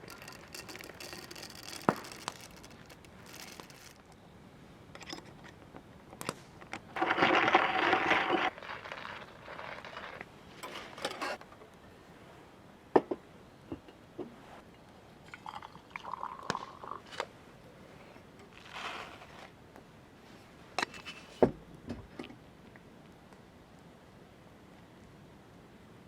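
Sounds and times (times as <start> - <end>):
handling scrapes: 0.0 - 4.2, 7.0 - 11.4, 17.0 - 19.6, 20.3 - 21.5
soft crinkling: 0.0 - 4.3, 6.8 - 11.5, 16.7 - 19.6.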